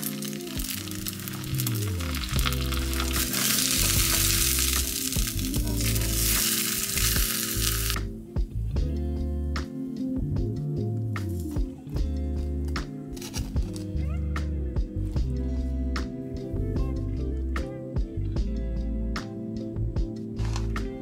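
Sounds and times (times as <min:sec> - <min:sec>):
egg and cabbage sizzling: 0:00.0 - 0:08.0
background music: 0:00.0 - 0:21.0.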